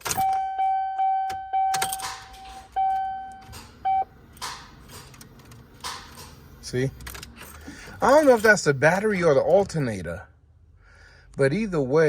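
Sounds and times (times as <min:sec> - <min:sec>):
car electronic warning beeps: 0:00.0 - 0:04.2.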